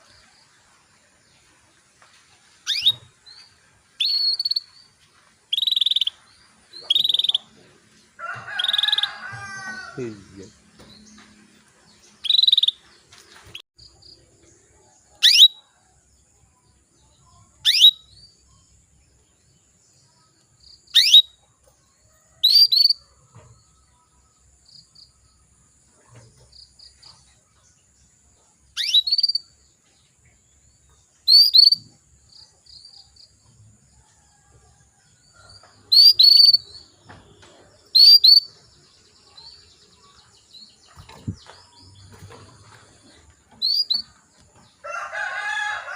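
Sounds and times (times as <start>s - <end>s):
canary chirping: 2.6s - 4.9s, 5.5s - 7.6s, 12.2s - 12.8s, 15.2s - 15.6s, 17.6s - 18.4s, 20.8s - 21.4s, 22.4s - 23.0s, 28.8s - 29.5s, 31.2s - 31.9s, 35.5s - 37.0s, 37.8s - 42.7s, 43.5s - 44.4s.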